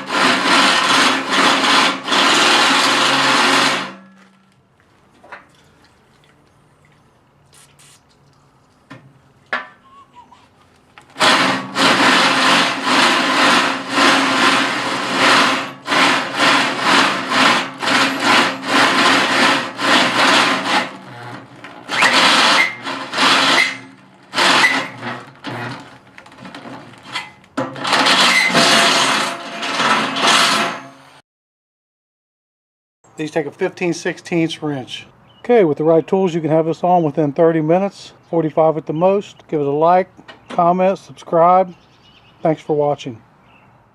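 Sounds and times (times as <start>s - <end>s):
power drill drilling through steel: 0.0s - 4.0s, 11.2s - 31.2s.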